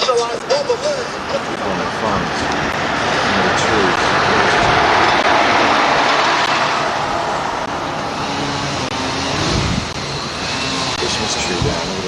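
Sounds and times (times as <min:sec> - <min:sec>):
car engine and tyre noise: 0:00.0 - 0:12.0.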